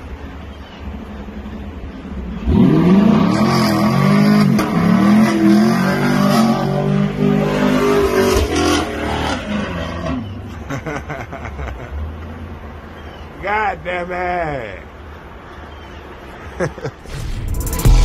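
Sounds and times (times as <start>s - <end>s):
car engine revving: 2.3s - 10.3s, 17.1s - 18.0s.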